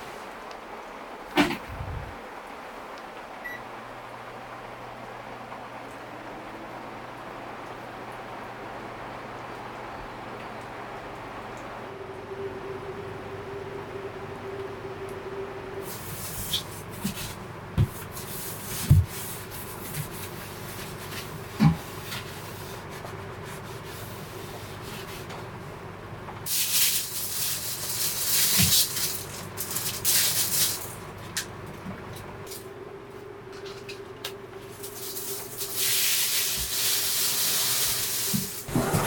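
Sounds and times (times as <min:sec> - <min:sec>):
rain hissing: 0:26.5 - 0:31.2, 0:34.7 - 0:39.0.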